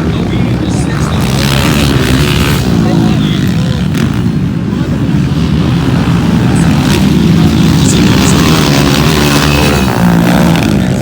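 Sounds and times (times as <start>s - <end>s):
motocross motorcycle engines revving: 0.0s - 11.0s.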